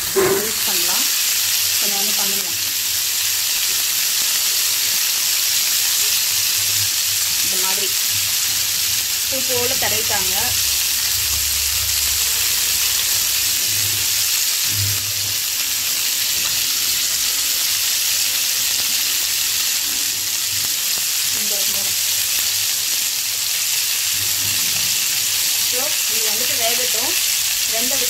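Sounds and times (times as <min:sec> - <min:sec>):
chicken sizzling in a frying pan: 0:00.0 - 0:28.0.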